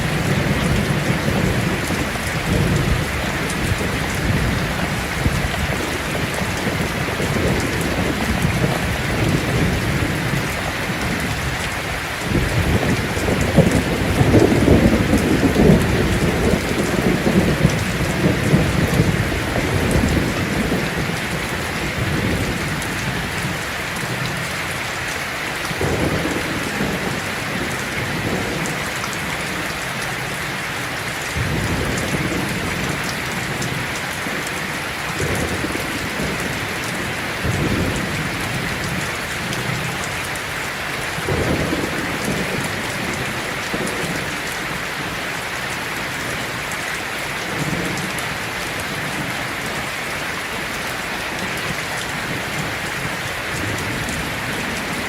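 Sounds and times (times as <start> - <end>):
thunder rumbling: 0.0 - 24.5, 31.4 - 45.2
heavy rain on a tin roof: 0.0 - 55.0.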